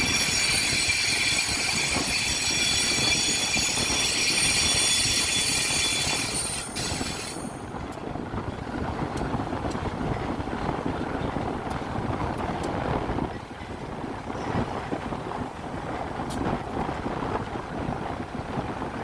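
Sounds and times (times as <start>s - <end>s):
train wheels squealing on rail: 0.0s - 7.9s
train rolling rumble: 0.0s - 19.0s.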